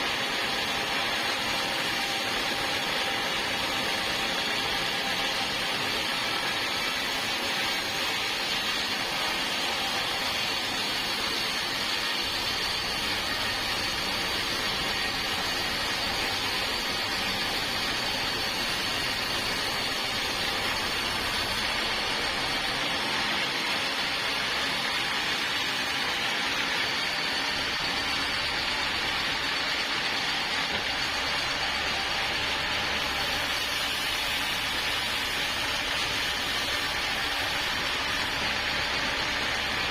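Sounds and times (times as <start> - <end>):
sawmill saw cutting wood: 0.0 - 39.9.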